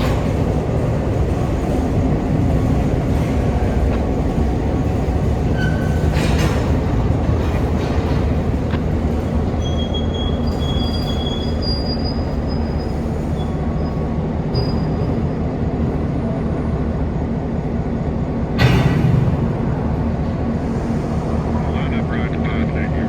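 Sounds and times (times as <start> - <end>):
steel wheels squealing on rails: 0.0 - 15.6
freight train rumbling by: 0.0 - 23.0.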